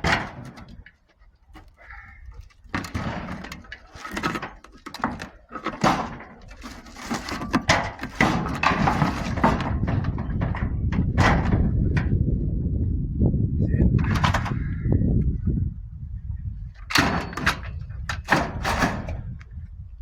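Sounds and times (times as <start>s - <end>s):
scrap metal clanking: 0.0s - 1.0s, 1.6s - 12.2s, 16.9s - 19.3s
steady low rumble: 8.6s - 16.8s.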